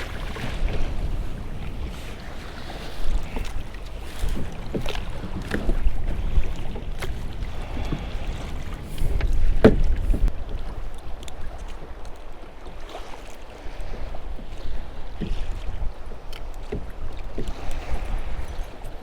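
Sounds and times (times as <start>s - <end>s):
wind buffeting microphone: 0.0s - 11.7s
water slapping kayak hull: 0.0s - 19.0s
sharp knocks: 9.6s - 10.0s.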